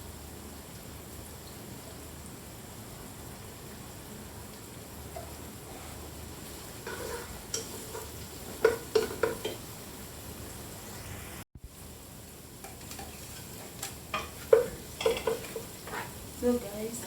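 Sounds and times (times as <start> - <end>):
food sizzling in hot oil: 0.0 - 17.0
utensil clacking against pan: 6.8 - 9.6, 12.6 - 16.2.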